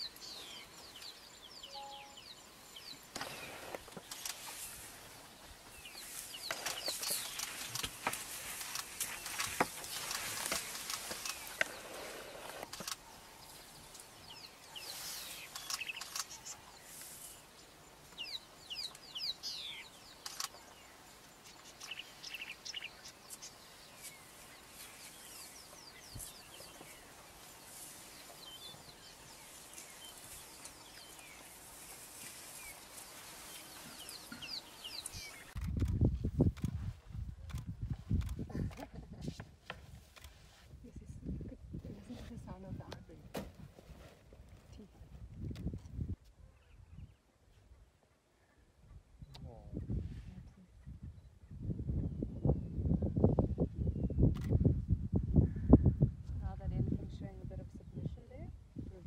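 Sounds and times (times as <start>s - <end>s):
birds chirping and whistling: 0.2s - 4.3s.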